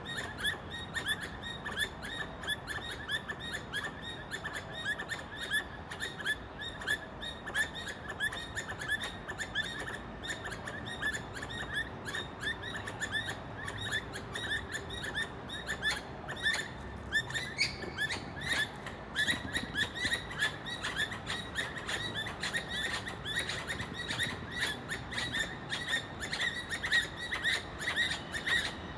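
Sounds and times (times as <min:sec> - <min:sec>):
squirrel chirping: 0:00.0 - 0:28.9.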